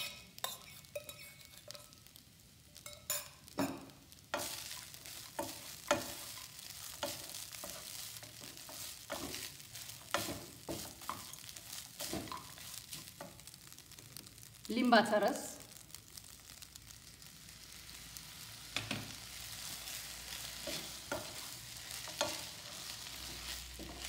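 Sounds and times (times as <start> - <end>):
faint frying sizzle: 0.0 - 24.0
wooden spatula scraping pan: 4.4 - 13.3, 18.8 - 24.0.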